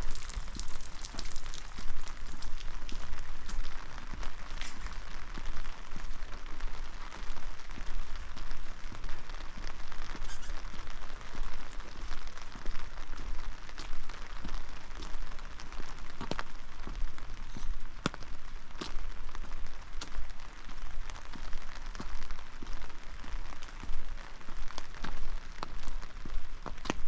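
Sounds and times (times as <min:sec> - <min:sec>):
rain falling: 0:00.0 - 0:27.0
raindrop ticks: 0:00.0 - 0:27.0.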